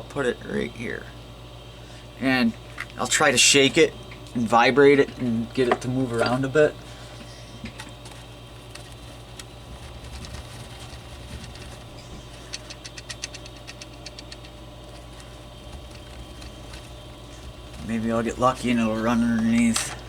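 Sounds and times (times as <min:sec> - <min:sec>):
low electrical hum: 0:00.0 - 0:20.0
quick light clicks: 0:12.2 - 0:17.0.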